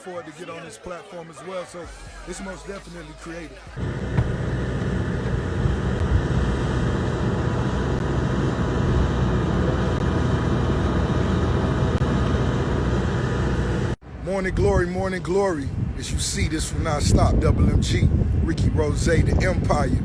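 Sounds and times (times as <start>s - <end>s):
loud engine noise: 3.8s - 14.0s.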